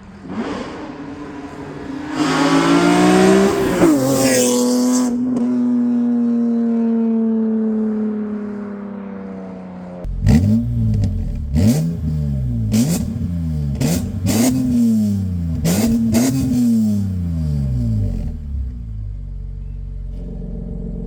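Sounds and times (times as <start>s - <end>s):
car engine revving: 0.0s - 6.4s, 7.4s - 21.0s
exhaust cracks: 10.0s - 21.0s.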